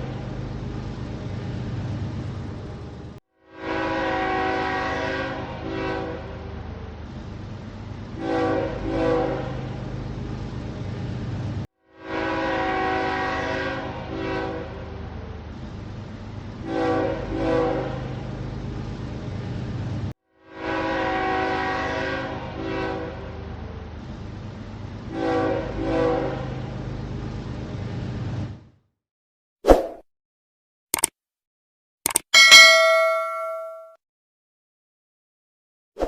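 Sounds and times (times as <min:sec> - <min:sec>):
locomotive engine rumble: 0:00.0 - 0:03.2
train horn blasts: 0:03.4 - 0:06.6, 0:08.1 - 0:09.7, 0:11.9 - 0:15.1, 0:16.6 - 0:18.2, 0:20.4 - 0:23.6, 0:25.0 - 0:26.6.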